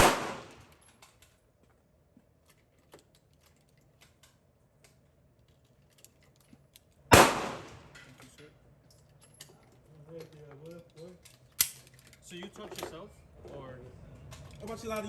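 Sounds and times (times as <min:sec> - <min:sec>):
gunshot with echo: 0:00.0 - 0:00.6, 0:07.1 - 0:07.9.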